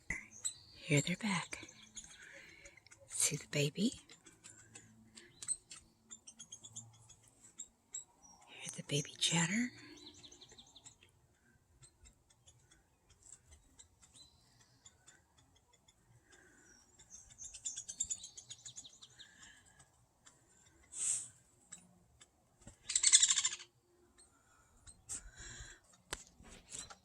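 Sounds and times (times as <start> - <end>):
young woodpecker begging chatter: 0.0 - 27.0
faint ticks: 24.2 - 27.0.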